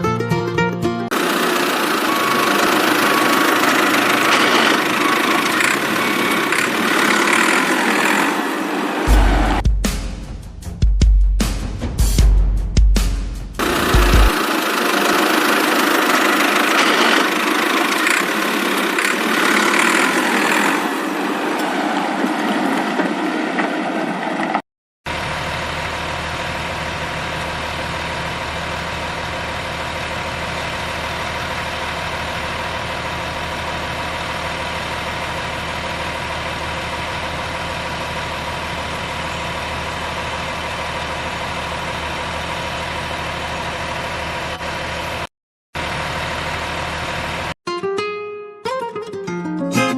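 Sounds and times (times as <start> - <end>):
vehicle engine idling: 1.1 - 9.6, 13.6 - 21.5, 25.1 - 47.6.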